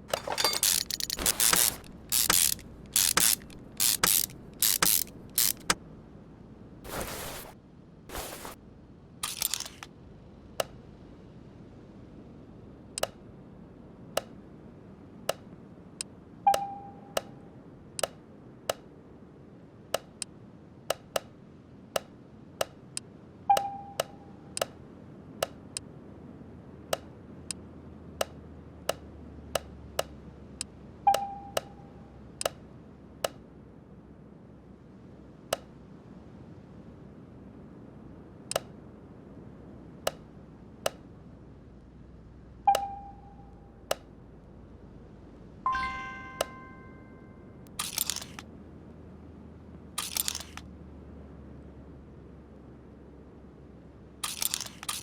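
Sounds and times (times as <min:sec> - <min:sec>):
sharp clicks: 0:00.1 - 0:05.8, 0:47.7 - 0:48.4, 0:50.0 - 0:50.6, 0:54.2 - 0:55.0
brief ringing tone: 0:16.5 - 0:17.2, 0:23.5 - 0:24.4, 0:31.1 - 0:31.9, 0:45.7 - 0:47.6.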